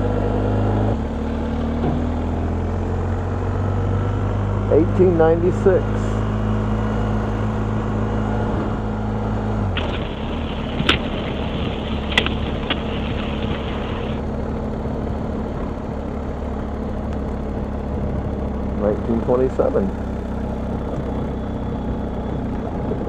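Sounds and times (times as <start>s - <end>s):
motorcycle engine running: 9.7s - 23.0s.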